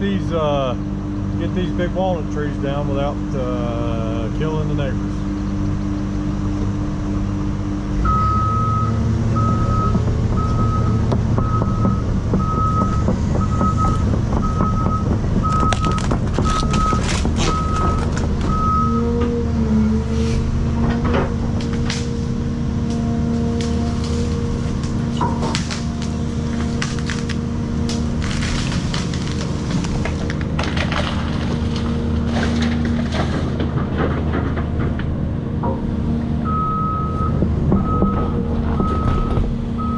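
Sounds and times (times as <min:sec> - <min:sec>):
excavator diesel engine running: 0:00.0 - 0:39.9
travel alarm beeping: 0:08.1 - 0:19.0, 0:36.5 - 0:39.9
sharp cracks and knocks: 0:11.1 - 0:18.6, 0:21.0 - 0:22.2, 0:23.6 - 0:35.8.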